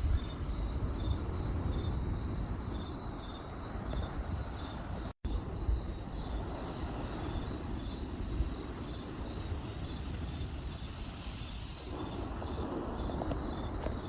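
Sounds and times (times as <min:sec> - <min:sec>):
campfire rushing: 0:00.0 - 0:14.0
crickets chirping: 0:00.0 - 0:14.0
fire popping: 0:05.2 - 0:14.0.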